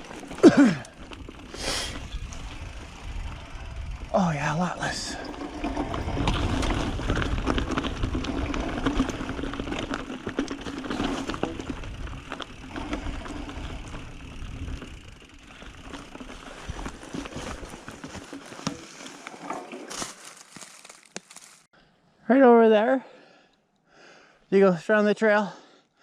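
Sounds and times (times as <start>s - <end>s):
bike rattling clicks on rock: 0.0s - 4.1s, 5.2s - 21.5s
bike tyre rumble: 0.0s - 21.7s.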